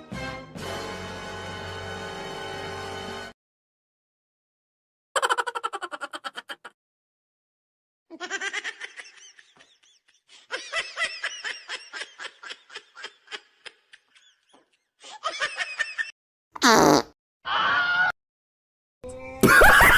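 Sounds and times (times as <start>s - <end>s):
high-pitched laughter: 5.2s - 6.8s, 19.4s - 19.9s.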